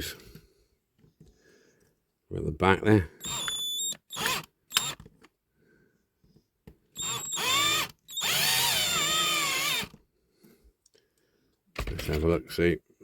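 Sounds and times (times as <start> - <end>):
electric drill whining into metal: 3.2 - 5.1, 7.0 - 10.0.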